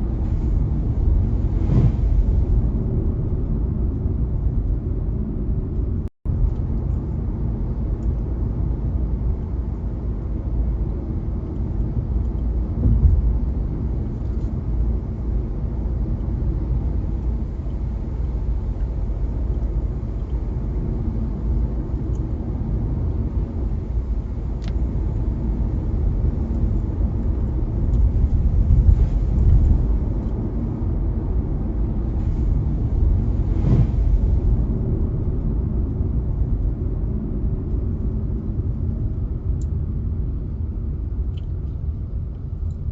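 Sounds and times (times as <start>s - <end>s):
car driving on wet streets: 0.0s - 39.5s.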